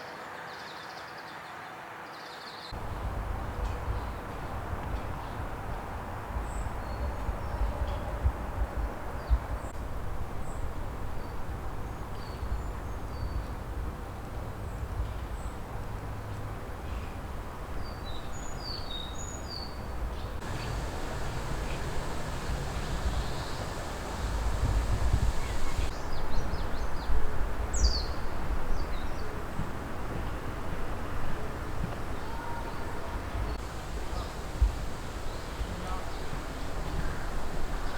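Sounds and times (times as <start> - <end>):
low rumble and hiss: 2.8 - 26.5, 30.9 - 37.9
warbler singing: 17.8 - 27.1, 33.5 - 37.9
small birds chirping: 17.9 - 26.6, 33.5 - 37.9.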